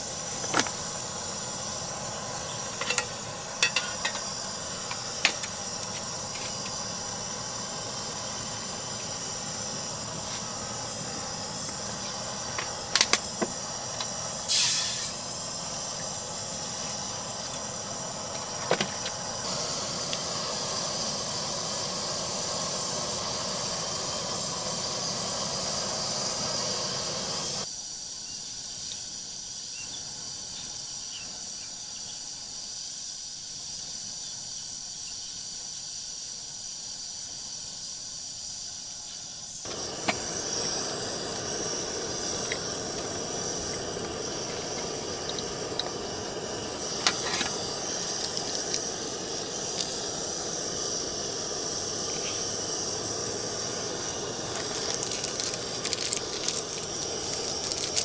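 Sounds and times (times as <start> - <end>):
rain hissing: 0.0 - 27.6, 39.6 - 58.0
high insect drone: 0.0 - 58.0.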